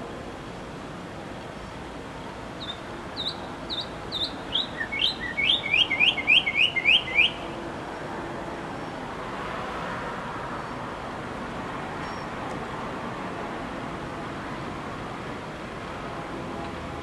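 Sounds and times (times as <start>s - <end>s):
background hiss: 0.0s - 17.0s
songbird singing: 2.5s - 7.6s, 12.0s - 12.4s.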